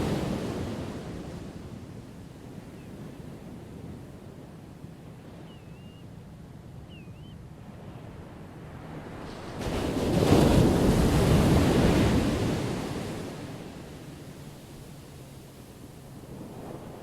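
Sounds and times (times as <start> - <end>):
low rumble of surf: 0.0 - 17.0.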